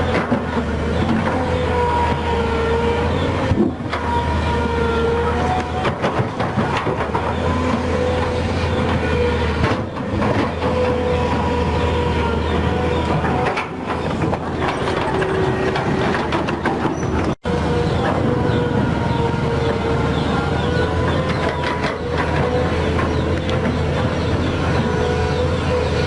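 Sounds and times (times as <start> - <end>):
excavator engine drone: 0.0 - 26.0
metallic clanks and rattles: 12.9 - 18.2.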